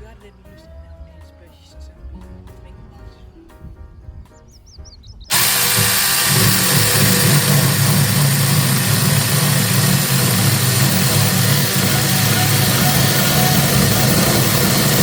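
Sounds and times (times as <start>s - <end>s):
mini chainsaw running: 5.3s - 15.0s.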